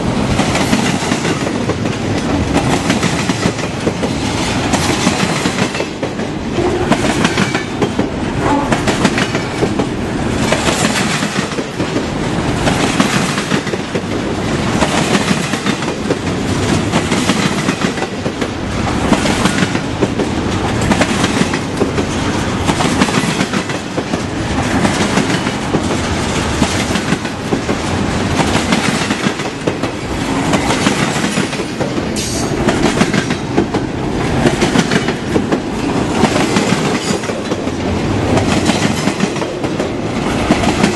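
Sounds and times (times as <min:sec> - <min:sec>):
train rumble: 0:00.0 - 0:40.9
train wheels clacking over rail joints: 0:00.1 - 0:40.9.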